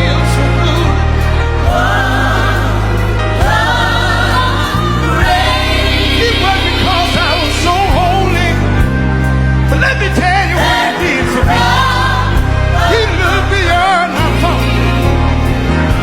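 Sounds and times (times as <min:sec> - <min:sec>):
choir singing gospel: 0:00.0 - 0:16.0
lead voice bending notes: 0:03.5 - 0:08.8.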